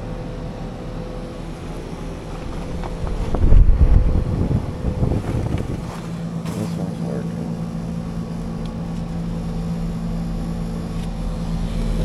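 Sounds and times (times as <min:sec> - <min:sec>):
heat pump units humming: 0:00.0 - 0:12.0
air buffeting microphone: 0:01.2 - 0:12.0.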